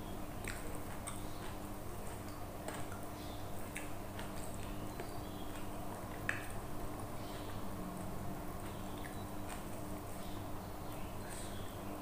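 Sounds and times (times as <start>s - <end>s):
person chewing: 0.3s - 10.2s
wet mouth clicks and smacks: 0.4s - 6.6s.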